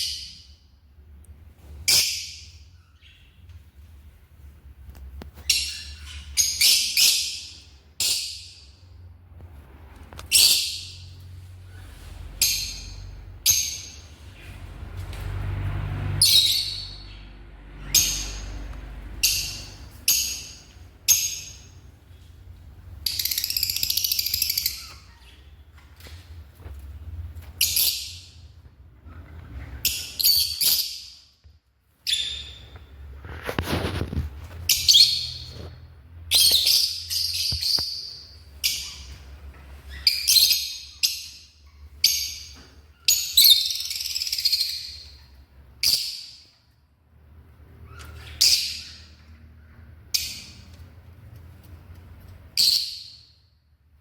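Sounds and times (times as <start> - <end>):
lovebirds chirping: 5.2 - 9.0, 16.2 - 26.0, 33.8 - 46.6.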